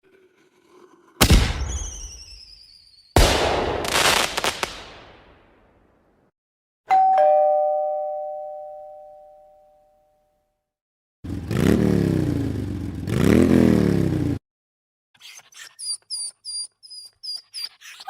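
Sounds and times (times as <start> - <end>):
two-tone doorbell chime: 6.9 - 10.4.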